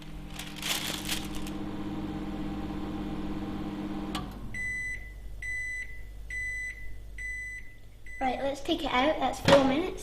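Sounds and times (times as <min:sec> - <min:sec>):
microwave oven humming: 0:00.0 - 0:08.6
high microwave beep: 0:04.5 - 0:08.4.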